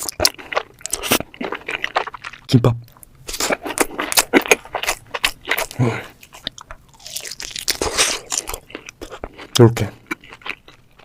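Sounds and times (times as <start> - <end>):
crunchy bites and chewing: 0.0 - 11.0.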